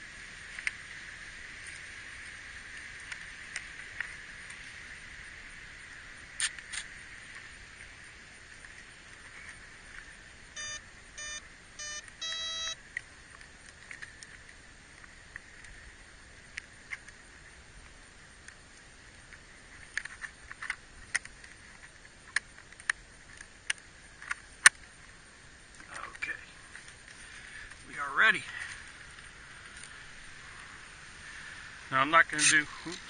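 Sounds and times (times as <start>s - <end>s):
sharp clicks: 6.4s - 6.9s
electronic arming beeps: 10.6s - 12.8s.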